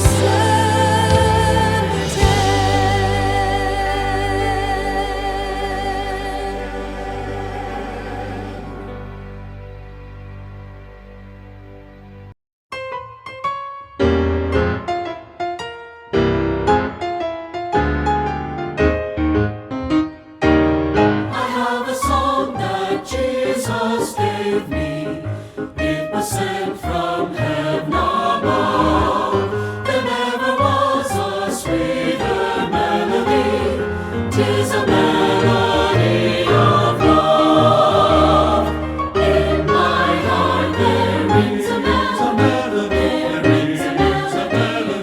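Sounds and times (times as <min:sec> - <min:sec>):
steady drum beat: 0:00.0 - 0:03.8
choir singing: 0:00.0 - 0:10.3, 0:21.2 - 0:45.0
instrumental accompaniment: 0:00.0 - 0:13.8.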